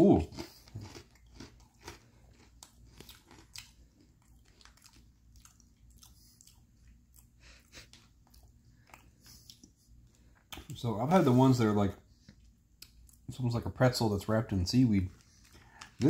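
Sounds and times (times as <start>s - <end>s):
person chewing crunchy cracker: 0.0s - 10.8s, 15.1s - 16.0s.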